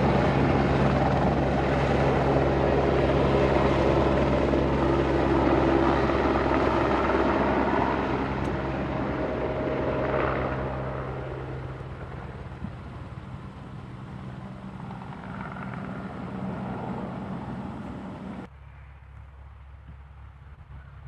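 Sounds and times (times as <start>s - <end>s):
helicopter rotor and engine: 0.0s - 18.5s.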